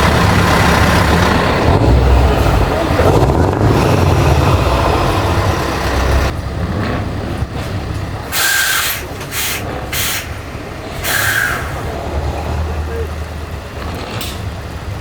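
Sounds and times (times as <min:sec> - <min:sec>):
truck diesel engine rumbling: 0:00.0 - 0:15.0
air brake hisses: 0:08.3 - 0:11.9.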